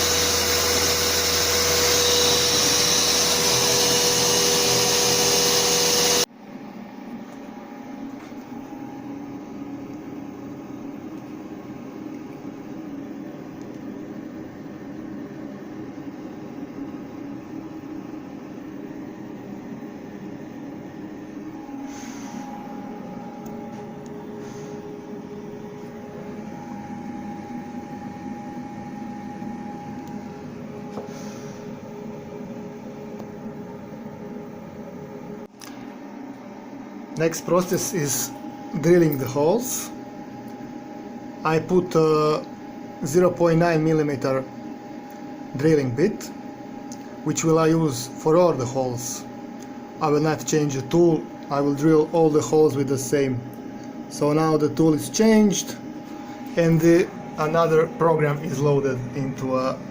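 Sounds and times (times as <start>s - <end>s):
router spindle whine: 0.0s - 6.3s
dust extraction vacuum running: 0.0s - 59.9s
steady machine hum: 0.0s - 59.9s
vacuum air rush: 21.5s - 32.1s.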